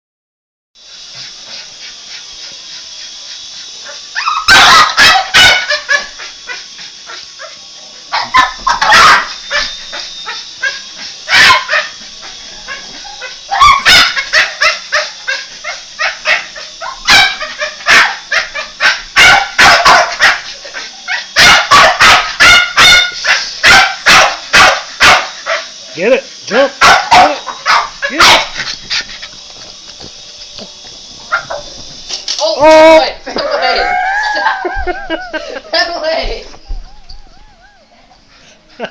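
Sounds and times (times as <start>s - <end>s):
steady high-pitched hiss: 0.8s - 38.9s
dog barking: 4.2s - 6.1s, 7.4s - 20.5s, 21.1s - 25.8s, 26.8s - 28.7s, 31.3s - 31.7s.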